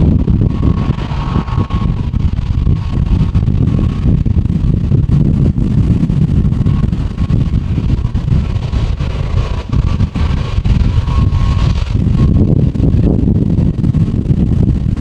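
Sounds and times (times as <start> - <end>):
faint steady whine: 0.0 - 15.0
wind buffeting microphone: 0.0 - 15.0.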